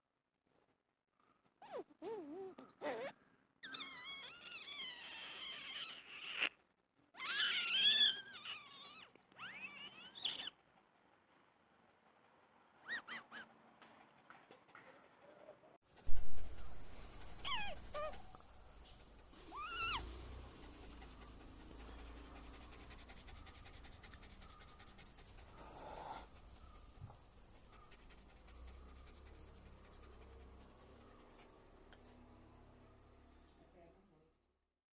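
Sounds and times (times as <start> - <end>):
dog whining: 1.6 - 6.5, 7.2 - 10.6, 12.8 - 13.5, 16.5 - 31.2.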